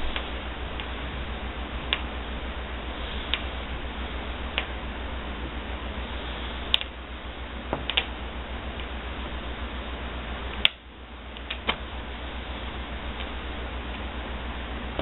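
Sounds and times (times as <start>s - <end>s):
low hum: 0.0s - 15.0s
steady hiss: 0.0s - 15.0s
blind cord clicks and taps: 11.4s - 11.8s.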